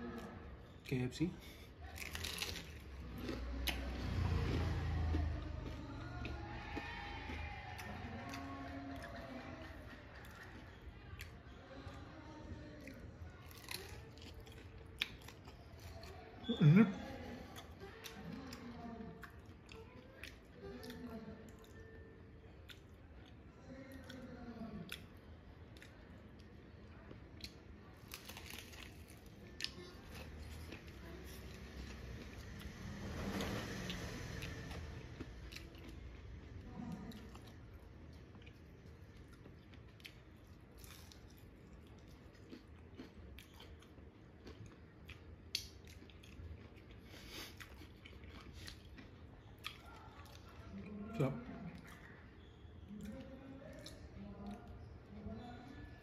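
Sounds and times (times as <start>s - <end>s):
person chewing crispy food: 1.4s - 11.5s, 12.7s - 16.7s, 22.5s - 51.0s.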